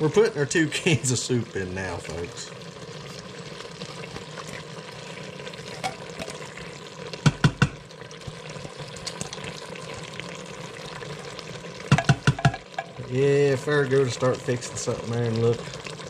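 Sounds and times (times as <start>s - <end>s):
chicken sizzling in a pot: 0.0s - 16.0s
soup spooned in: 3.0s - 7.1s
sharp knocks: 11.9s - 12.6s.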